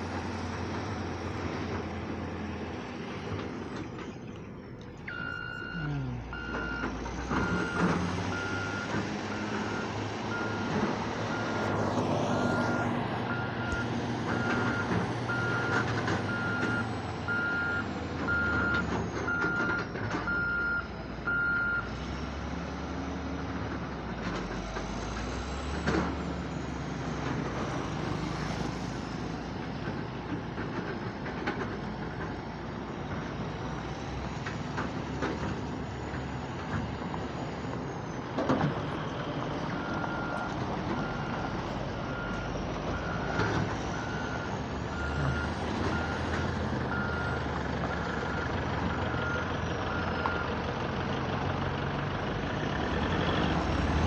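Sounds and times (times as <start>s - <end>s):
diesel engines running: 0.0s - 54.0s
reversing alarm beeping: 5.0s - 11.8s, 12.4s - 21.9s, 39.7s - 47.5s.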